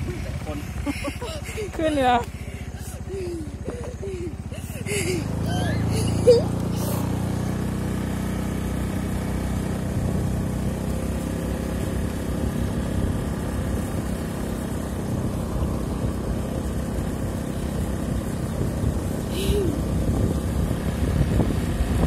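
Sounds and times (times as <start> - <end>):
small motorbike engine running: 0.0 - 22.0
wind rumble on microphone: 15.0 - 22.0.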